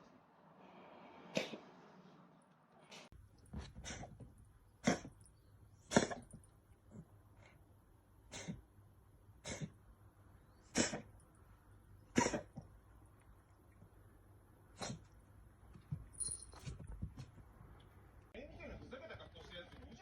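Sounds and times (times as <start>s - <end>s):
cat coughing: 4.8s - 5.2s, 5.8s - 7.0s, 8.3s - 8.7s, 9.4s - 9.8s, 10.6s - 11.2s, 12.0s - 12.7s.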